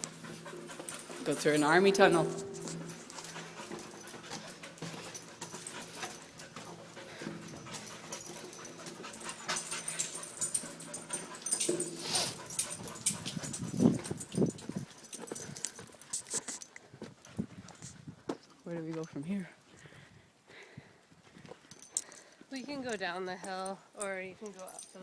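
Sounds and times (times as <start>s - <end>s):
puppy panting: 0.0s - 16.6s.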